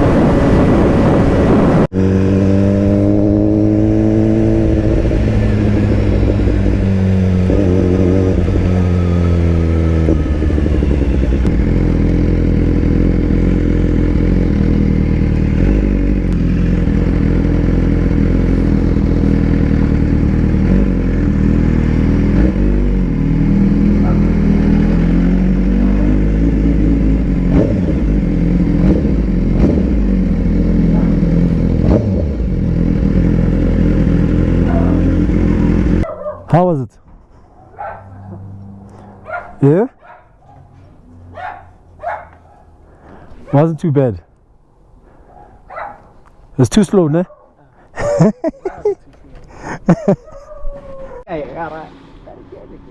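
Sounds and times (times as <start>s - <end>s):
motorcycle engine revving: 0.0s - 36.4s, 37.8s - 40.0s, 48.0s - 49.0s.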